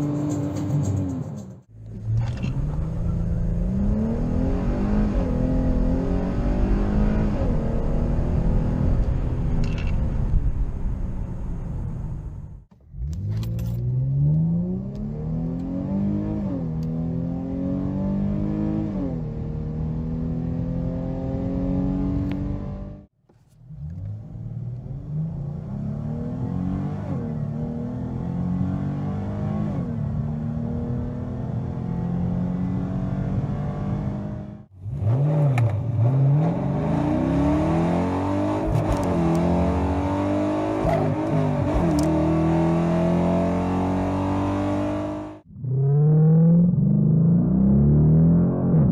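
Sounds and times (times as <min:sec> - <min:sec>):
car engine accelerating: 0:00.0 - 0:48.9.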